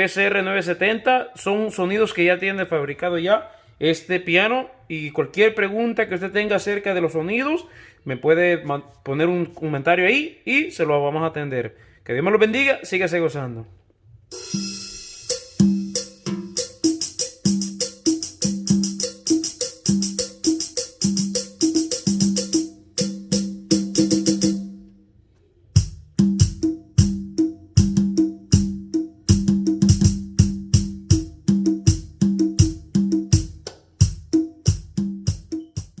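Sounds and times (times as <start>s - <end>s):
pitched drum hits: 14.3s - 24.7s, 25.8s - 36.0s.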